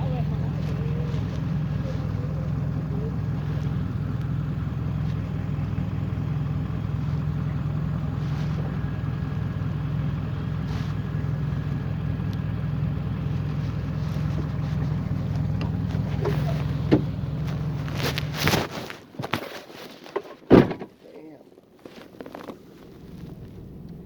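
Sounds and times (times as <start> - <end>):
vehicle engine low hum: 0.0 - 24.0.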